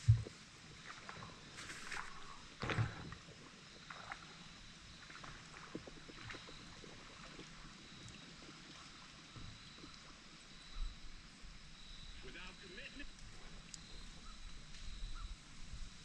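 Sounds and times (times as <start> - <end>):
paddle splashing in water: 0.0 - 10.2.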